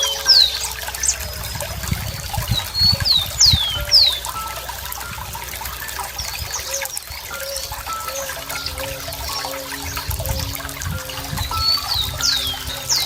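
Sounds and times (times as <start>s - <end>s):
birds singing: 0.0s - 13.0s
stream of water trickling: 0.0s - 13.0s.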